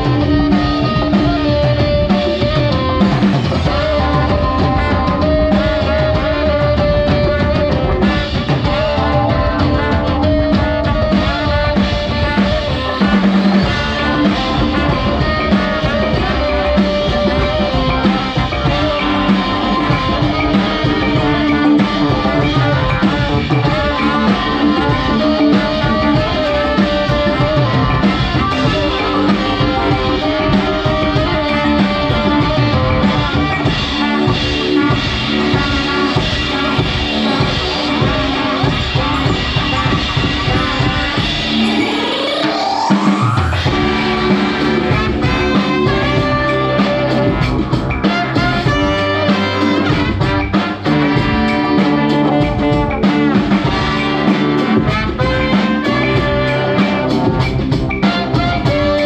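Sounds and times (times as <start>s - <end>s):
drums: 0.0s - 59.0s
live band playing slow song: 0.0s - 59.0s.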